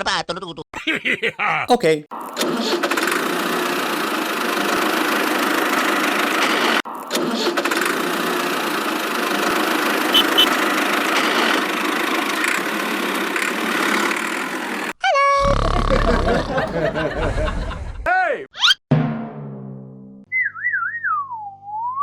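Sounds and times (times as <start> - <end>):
small engine running: 2.8 - 6.4
short high engine blips: 10.1 - 10.6.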